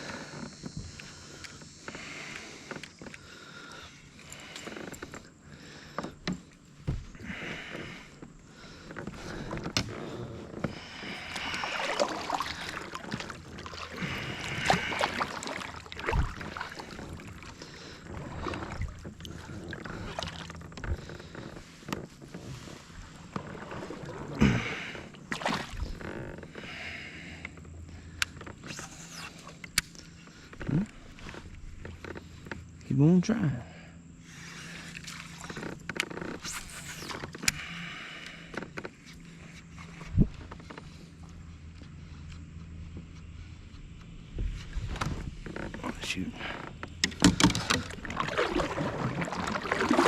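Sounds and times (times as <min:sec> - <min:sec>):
paddle swishing through water: 0:00.0 - 0:26.8, 0:34.2 - 0:37.6, 0:44.3 - 0:50.0.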